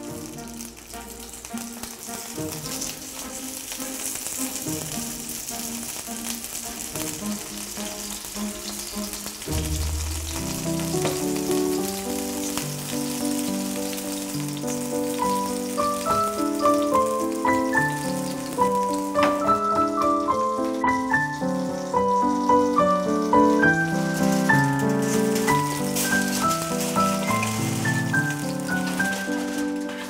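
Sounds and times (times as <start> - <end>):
background music: 0.0 - 30.0
dumplings sizzling in oil: 0.0 - 30.0.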